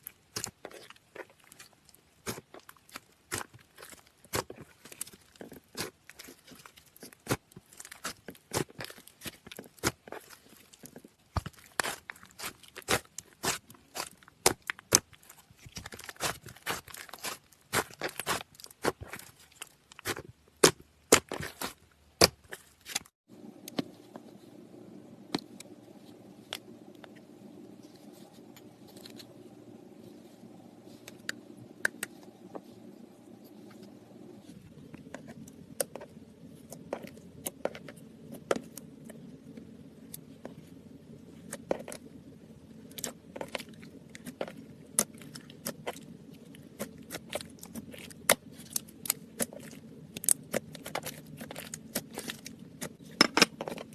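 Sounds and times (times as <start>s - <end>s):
steady low hum: 23.2s - 53.9s.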